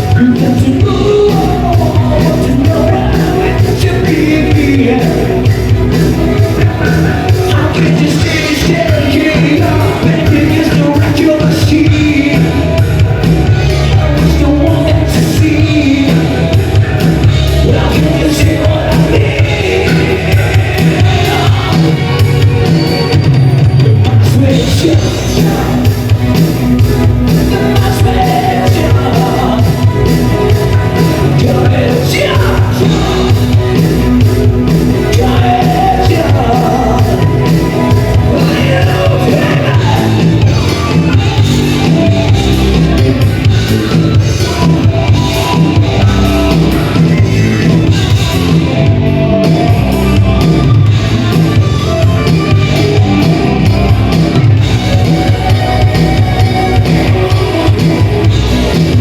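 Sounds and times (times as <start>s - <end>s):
live rock band playing: 0.0s - 59.0s
person singing and shouting: 31.0s - 33.7s, 35.0s - 48.8s.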